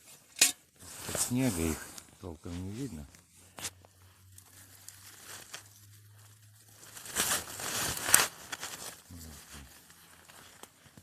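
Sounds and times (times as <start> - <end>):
crunching in snow and brittle wood: 0.8 - 11.0.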